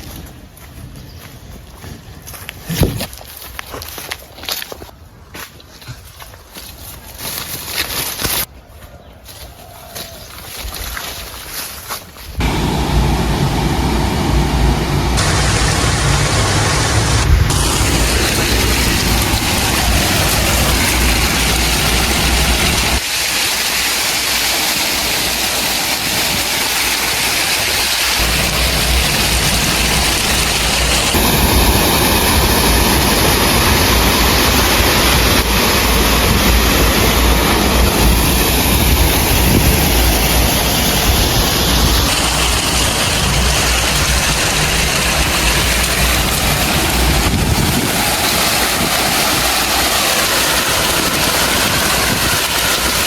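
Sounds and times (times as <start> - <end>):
diesel machinery engine rumble: 12.4 - 23.0, 28.1 - 53.0
noisy rush: 12.4 - 23.1, 24.8 - 53.0.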